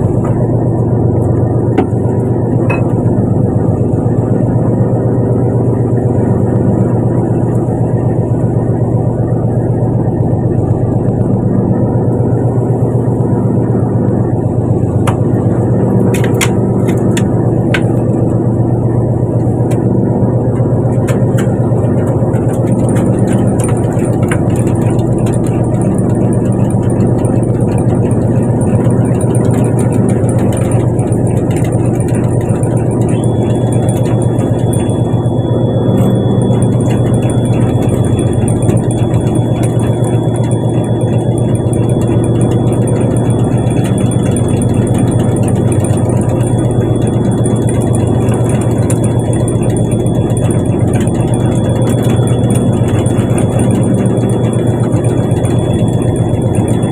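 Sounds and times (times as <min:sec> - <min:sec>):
boat engine droning: 0:00.0 - 0:56.9
thin high whine: 0:00.0 - 0:56.9.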